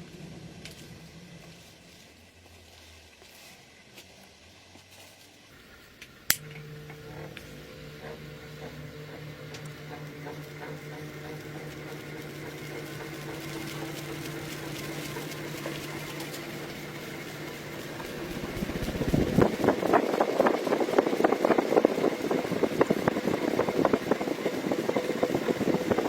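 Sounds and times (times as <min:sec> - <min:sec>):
small motor humming: 0:05.5 - 0:26.0.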